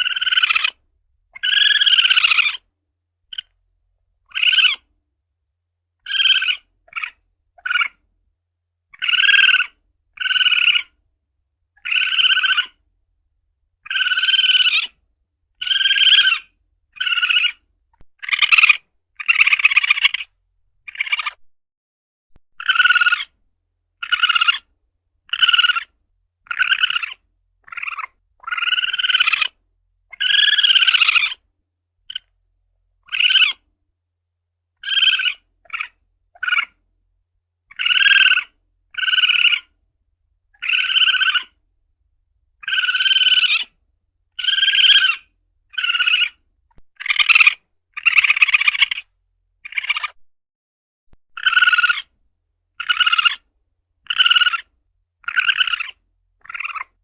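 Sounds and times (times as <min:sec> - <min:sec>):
civet high arching cries: 0:00.0 - 0:00.8, 0:01.4 - 0:02.6, 0:04.3 - 0:04.9, 0:06.0 - 0:08.0, 0:08.9 - 0:11.0, 0:11.8 - 0:12.8, 0:13.8 - 0:15.0, 0:15.6 - 0:21.4, 0:22.6 - 0:23.4, 0:24.0 - 0:24.7, 0:25.3 - 0:31.4, 0:33.0 - 0:33.6, 0:34.8 - 0:36.8, 0:37.7 - 0:39.7, 0:40.6 - 0:41.6, 0:42.6 - 0:43.7, 0:44.4 - 0:46.4, 0:47.0 - 0:50.2, 0:51.4 - 0:52.1, 0:52.8 - 0:57.0.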